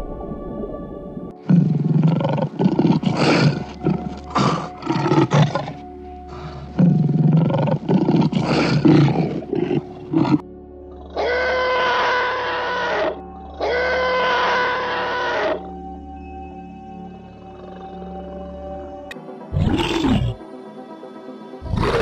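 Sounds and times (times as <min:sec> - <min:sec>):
background music: 0:00.0 - 0:22.0
tiger roaring and growling: 0:01.4 - 0:15.7, 0:19.5 - 0:20.4, 0:21.6 - 0:22.0.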